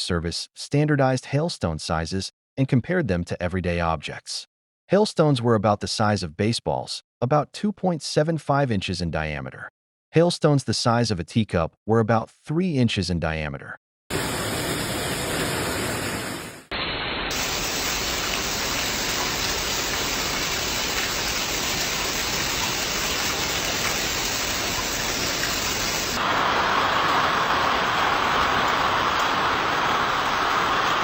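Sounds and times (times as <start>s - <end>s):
heavy hail and rain pounding: 17.3s - 31.0s.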